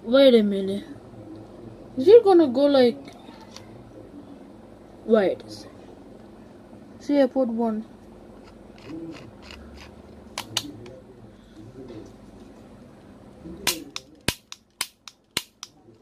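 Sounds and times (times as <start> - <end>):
toy revolver mechanism clicking: 13.7 - 15.8.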